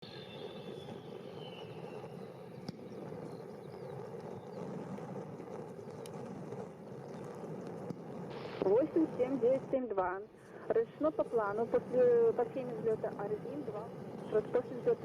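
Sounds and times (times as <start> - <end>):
distant jet engines rumbling: 0.0 - 15.0
high whine falling in pitch: 0.0 - 15.0.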